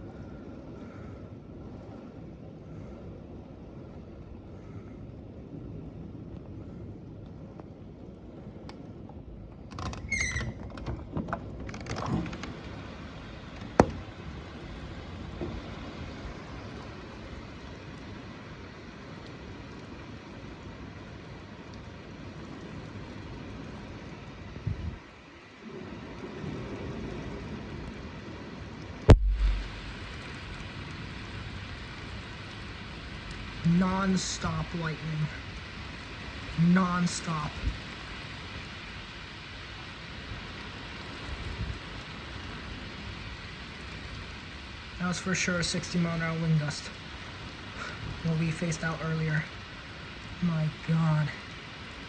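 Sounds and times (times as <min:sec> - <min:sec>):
rain and wind: 0:00.0 - 0:52.0
storm rumbling outside: 0:00.0 - 0:52.0
squeaks and clicks: 0:09.7 - 0:10.9
thunder crack and thump: 0:29.1 - 0:30.6.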